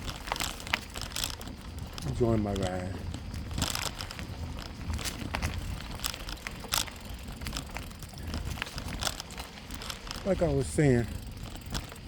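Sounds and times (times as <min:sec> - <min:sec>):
bicycle tyres rolling on trail: 0:00.0 - 0:12.0.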